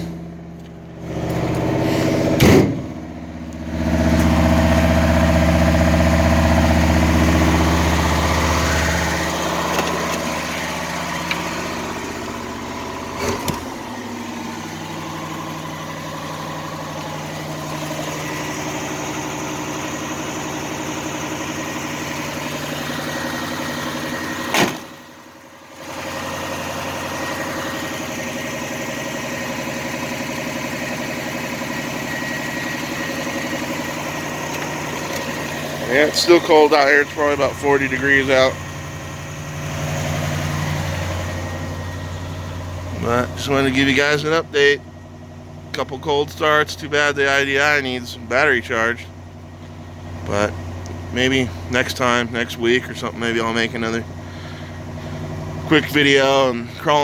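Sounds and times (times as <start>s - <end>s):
engine idling: 0.0s - 57.0s
sharp knocks: 2.3s - 3.0s.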